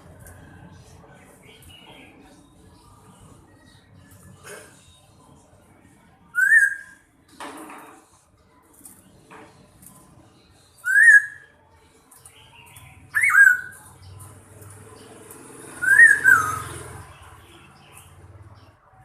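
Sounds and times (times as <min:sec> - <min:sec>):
faint high bird chirps: 0:06.3 - 0:07.1, 0:10.6 - 0:14.3, 0:15.8 - 0:18.4
bird whistled calls: 0:06.4 - 0:07.0, 0:10.8 - 0:11.5, 0:13.1 - 0:13.8, 0:15.8 - 0:16.8.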